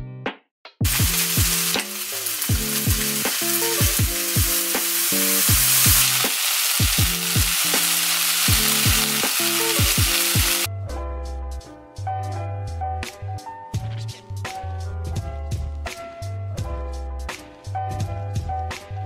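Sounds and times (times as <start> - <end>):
music beat: 0.3 - 10.7
rice sizzling in a frying pan: 0.8 - 10.7.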